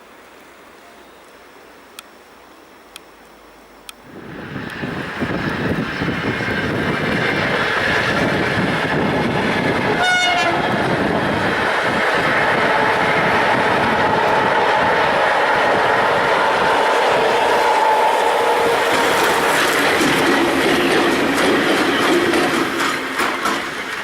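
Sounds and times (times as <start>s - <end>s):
steady whine: 0.0s - 24.0s
locomotive wheels rumbling on rails: 4.0s - 24.0s
locomotive horn toot: 9.9s - 10.8s.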